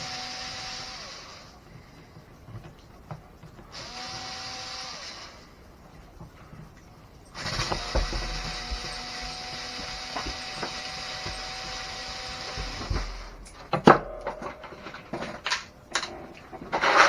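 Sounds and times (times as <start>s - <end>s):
electric drill-driver motor running: 0.0s - 1.6s, 3.7s - 5.5s, 7.4s - 13.4s.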